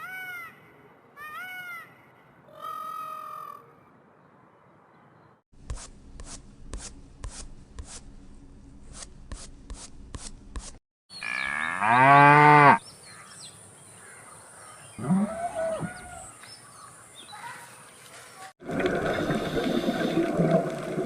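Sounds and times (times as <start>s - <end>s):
low hum: 5.6s - 10.6s
cow mooing: 11.2s - 12.8s, 15.0s - 16.2s.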